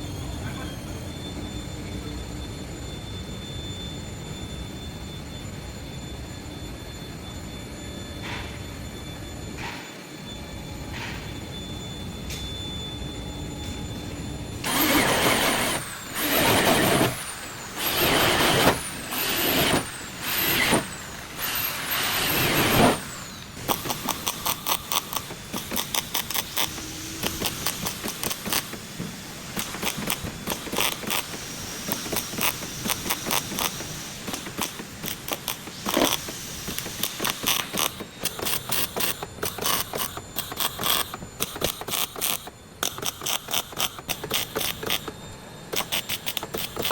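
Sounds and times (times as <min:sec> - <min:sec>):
power tool bursts: 0:14.6 - 0:46.9
rapid ratcheting clicks: 0:23.6 - 0:28.8, 0:29.5 - 0:46.9.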